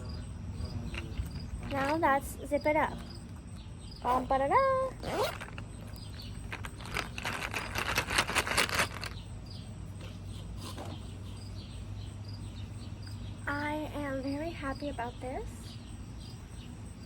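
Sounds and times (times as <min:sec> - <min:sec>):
rustling and clicking of makeup bag: 0:05.2 - 0:09.2.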